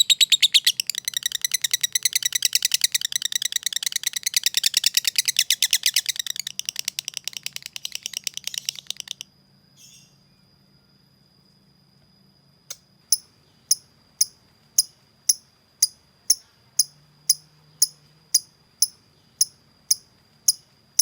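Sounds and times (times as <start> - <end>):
lovebird rapid chattering call: 0.0 - 9.2
faint bird chirp: 0.0 - 11.7, 12.4 - 21.0.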